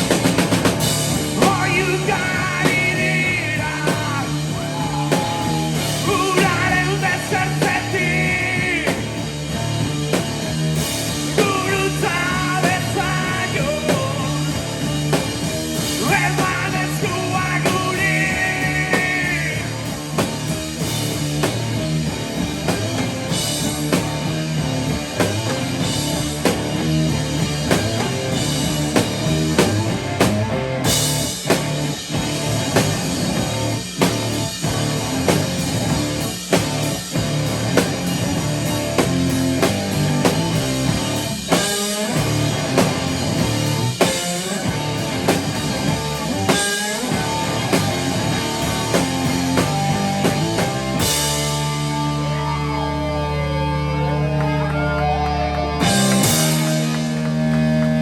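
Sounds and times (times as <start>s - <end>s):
live rock band: 0.0s - 58.0s
wordless vocals: 1.1s - 9.7s, 11.1s - 20.2s.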